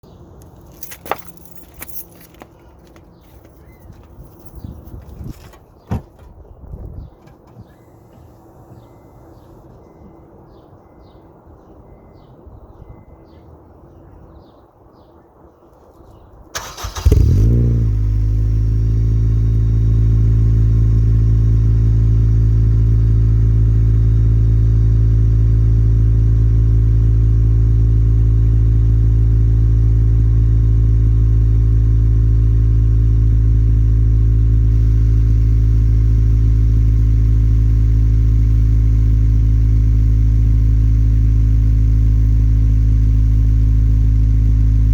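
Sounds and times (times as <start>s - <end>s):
car engine starting and idling: 16.5s - 44.9s.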